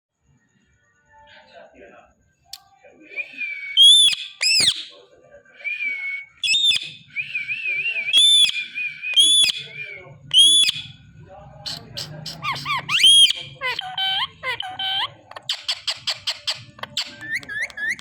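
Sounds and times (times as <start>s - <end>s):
parrot warbling whistle: 3.2s - 4.9s, 5.9s - 10.9s, 11.7s - 18.0s
parrot high-pitched calls: 3.3s - 4.9s, 6.4s - 7.0s, 8.2s - 10.9s, 11.7s - 18.0s.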